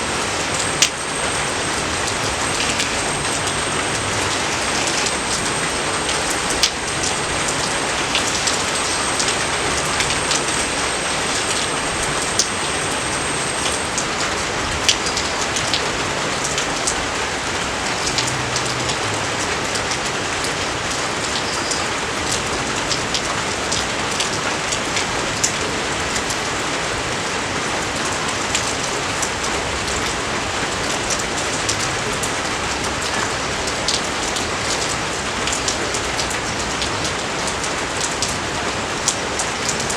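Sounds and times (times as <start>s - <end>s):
raindrops hitting: 0.0s - 26.3s
rain falling: 0.0s - 39.9s.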